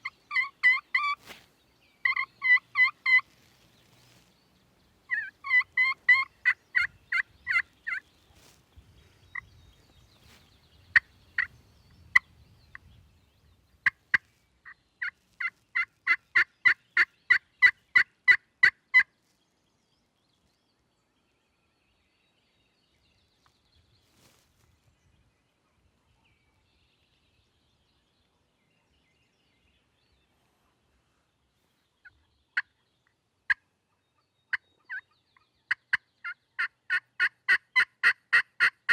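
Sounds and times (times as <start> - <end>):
wild turkey yelping: 0.0 - 1.3, 2.0 - 3.3, 5.1 - 8.0, 35.7 - 38.9.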